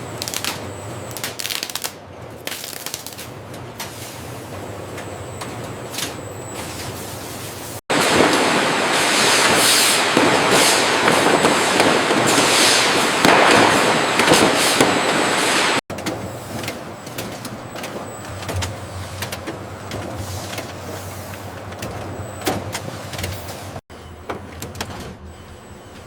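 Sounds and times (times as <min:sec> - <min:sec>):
factory machinery clattering: 0:07.6 - 0:25.4
machinery hissing: 0:07.9 - 0:15.8.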